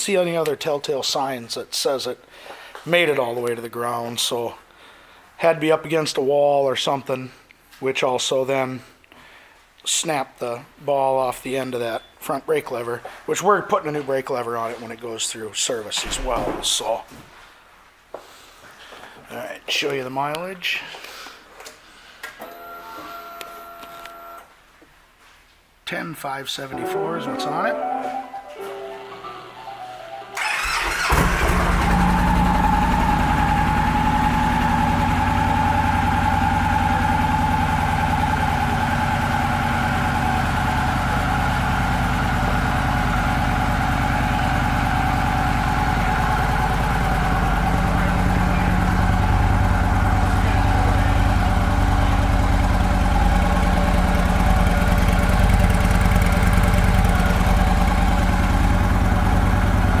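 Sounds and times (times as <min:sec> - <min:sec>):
motorcycle engine idling: 0:30.7 - 1:00.0.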